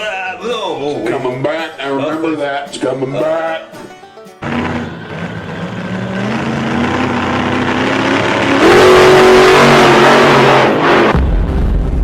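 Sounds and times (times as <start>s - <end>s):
truck engine revving: 4.4s - 11.9s.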